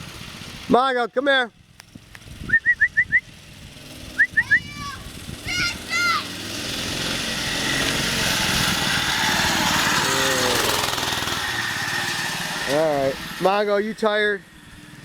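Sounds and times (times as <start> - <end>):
mini-bike engine running: 0.0 - 0.9, 1.5 - 15.0
short high calls: 2.5 - 3.4, 4.1 - 6.4.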